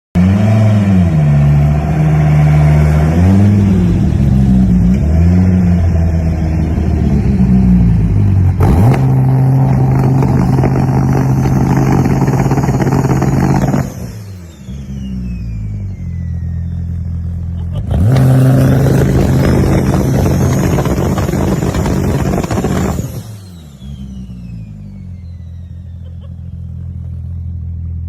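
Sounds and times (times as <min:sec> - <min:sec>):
car engine revving: 0:00.2 - 0:28.0
exhaust crackling pops: 0:08.6 - 0:14.0, 0:18.0 - 0:23.2.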